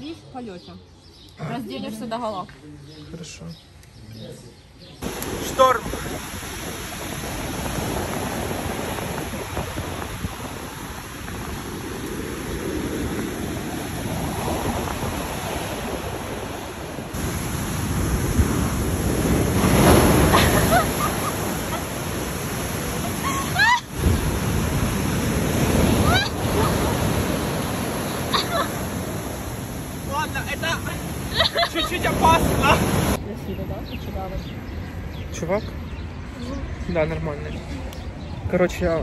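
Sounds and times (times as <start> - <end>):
surf breaking and washing: 5.0 - 33.2
wind buffeting microphone: 5.0 - 39.0.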